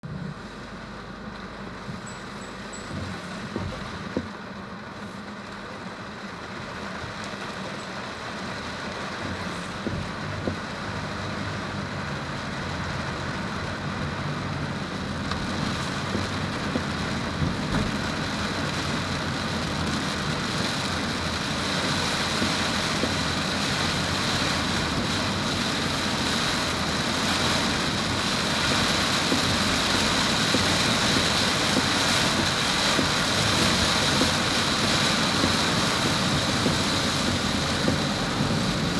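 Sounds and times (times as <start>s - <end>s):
vehicle engine hum: 0.0s - 38.9s.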